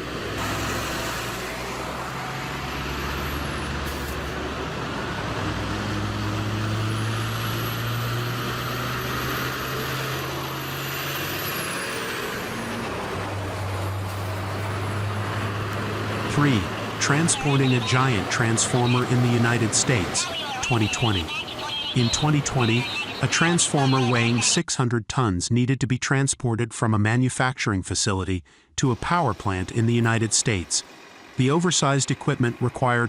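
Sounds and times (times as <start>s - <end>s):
heavy truck engine humming: 0.0s - 24.5s, 28.9s - 33.0s.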